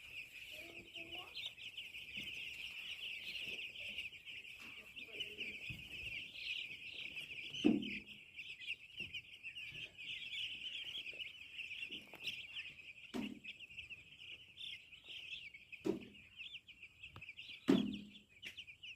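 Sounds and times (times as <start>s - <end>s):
chicks peeping: 0.0s - 18.9s.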